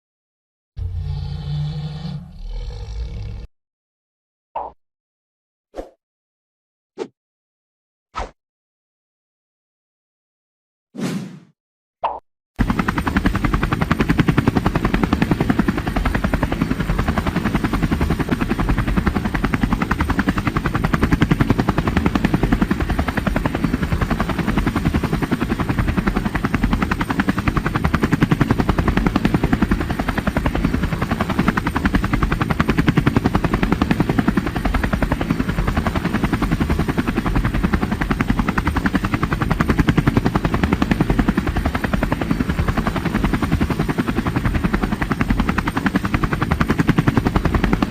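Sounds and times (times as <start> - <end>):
helicopter rotor blades chopping: 12.6 - 47.9.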